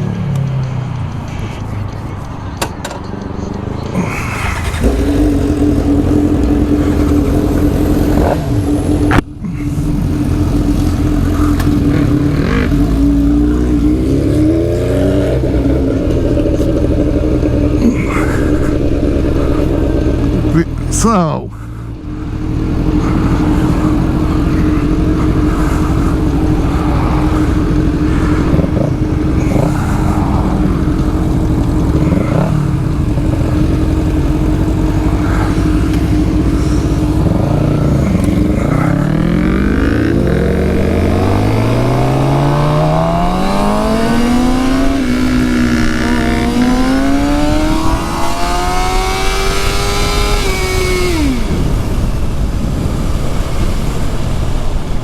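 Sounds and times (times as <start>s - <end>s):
motorcycle engine revving: 3.8s - 54.8s.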